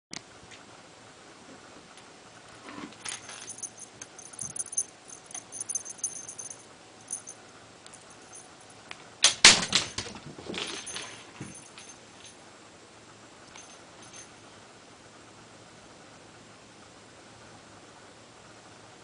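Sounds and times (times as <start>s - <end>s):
rattling clicks: 3.0s - 8.1s
small bell jingling: 3.0s - 8.8s, 10.6s - 12.4s, 13.5s - 14.4s.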